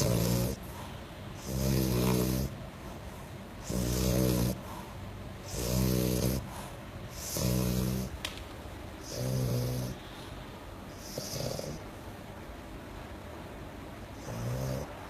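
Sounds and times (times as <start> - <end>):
dog snoring loudly: 0.0 - 2.7, 3.6 - 4.8, 5.4 - 8.2, 9.0 - 10.1, 10.9 - 11.9, 14.2 - 15.0
dog breathing: 0.0 - 8.2, 9.0 - 12.0.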